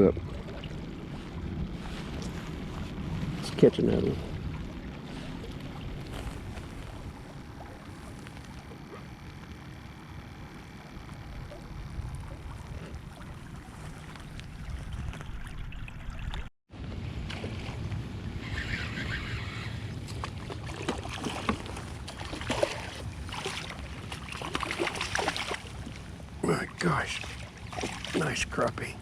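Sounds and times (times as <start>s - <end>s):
water noise around boat: 0.0s - 29.0s
wind: 0.0s - 29.0s
water splashes: 10.6s - 16.5s, 19.9s - 29.0s.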